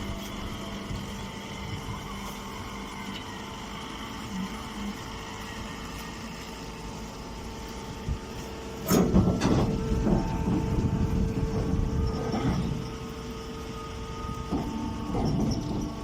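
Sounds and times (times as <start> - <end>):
baler motor hum: 0.0 - 16.0
mechanical clattering and knocking: 8.8 - 12.8, 14.5 - 16.0.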